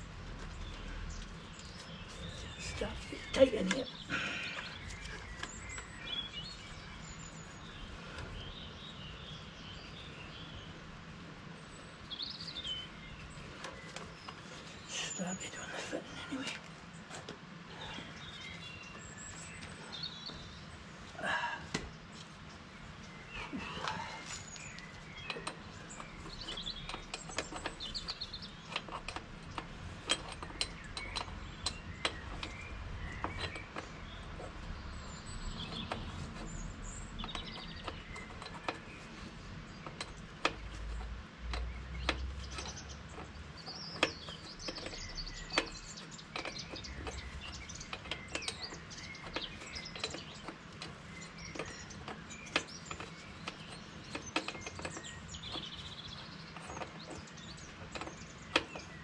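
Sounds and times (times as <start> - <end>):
birds chirping: 0.0 - 59.0
metallic clicks of hand tools: 24.6 - 33.9, 39.8 - 59.0.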